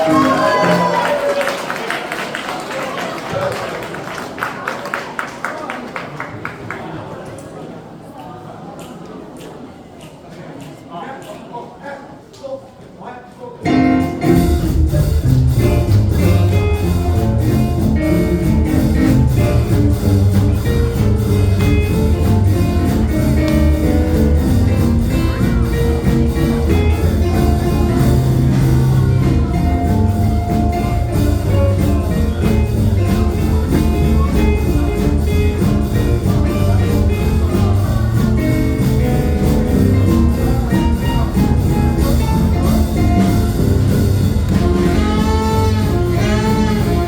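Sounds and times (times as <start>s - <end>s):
live jazz band playing: 0.0s - 1.5s, 13.6s - 47.0s.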